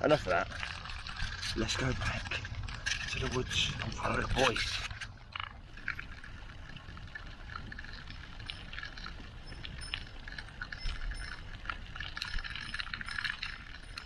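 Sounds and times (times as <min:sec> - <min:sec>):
low rumble of tyres on trail: 0:00.0 - 0:14.0
bicycle clicks and rattles: 0:04.4 - 0:14.0.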